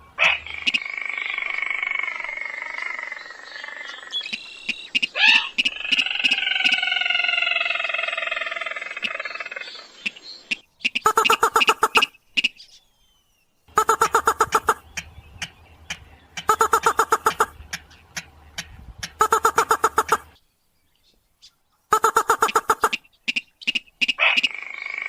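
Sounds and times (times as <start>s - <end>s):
harsh bird call: 0.0s - 12.6s, 13.7s - 18.1s, 19.1s - 20.4s, 21.9s - 25.0s
fast clicking notes: 15.4s - 20.3s.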